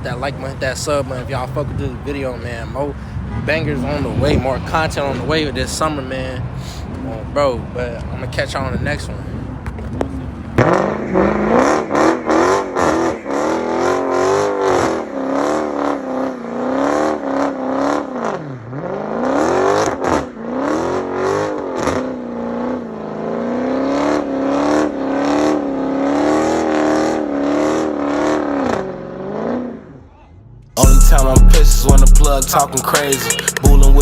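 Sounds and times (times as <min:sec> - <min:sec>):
exhaust crackles: 0:00.0 - 0:16.5
car engine revving: 0:00.0 - 0:30.0, 0:30.8 - 0:34.0.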